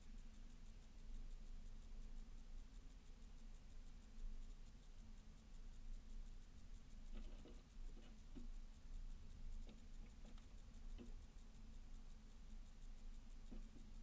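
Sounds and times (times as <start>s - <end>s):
birds pecking seeds: 0.0s - 14.0s
low steady hum: 0.0s - 14.0s.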